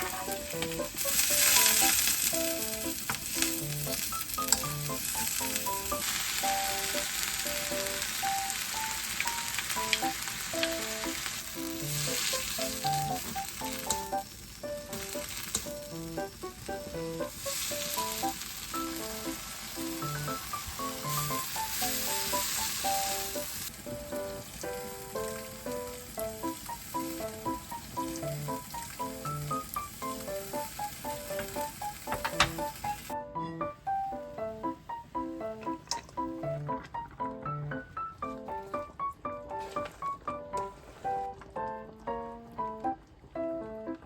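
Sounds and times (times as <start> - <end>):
food sizzling in a frying pan: 0.0 - 33.2
plucked background music: 0.0 - 44.0.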